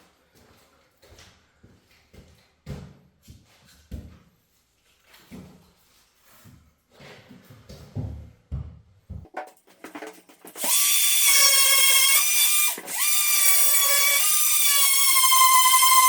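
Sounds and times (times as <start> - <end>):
power tool motor whining: 10.6 - 16.0.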